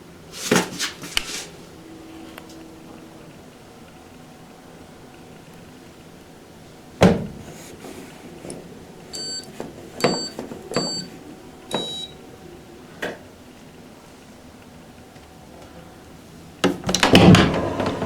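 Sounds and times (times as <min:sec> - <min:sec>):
button clicks: 0:09.2 - 0:11.1, 0:11.7 - 0:12.2
short electronic beeps: 0:09.2 - 0:11.1, 0:11.7 - 0:12.2.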